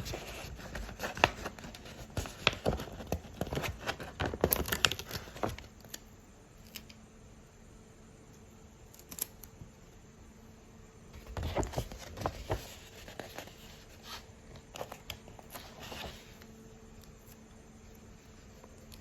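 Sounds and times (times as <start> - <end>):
paper packaging crinkling: 0.0 - 6.0, 11.2 - 16.5.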